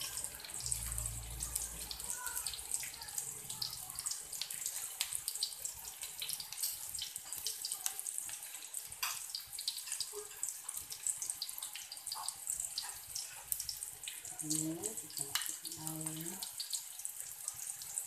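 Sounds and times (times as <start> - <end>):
shallots sizzling in hot oil: 0.0 - 18.0.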